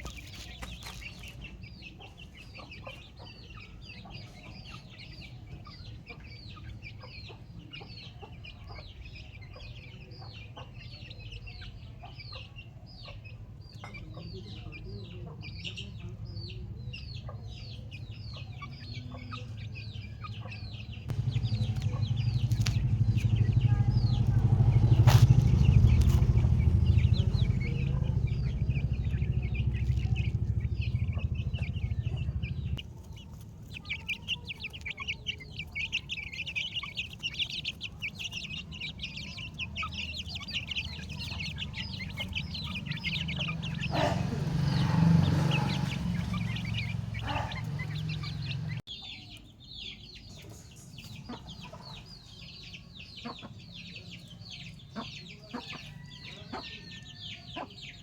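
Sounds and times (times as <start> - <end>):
chickens clucking and calling: 0.0 - 58.0
low rumble: 19.9 - 48.8.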